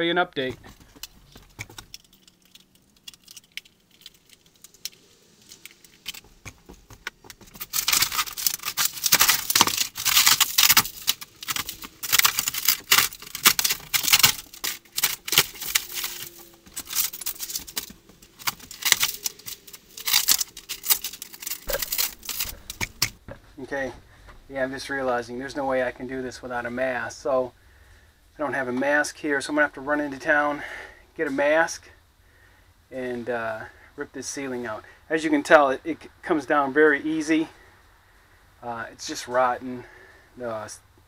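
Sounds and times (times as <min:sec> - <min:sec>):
ceiling panel tearing and crackling: 0:00.8 - 0:23.3.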